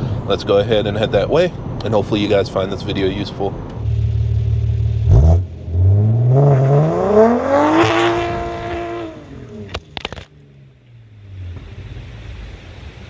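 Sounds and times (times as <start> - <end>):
car engine revving: 3.8 - 12.2.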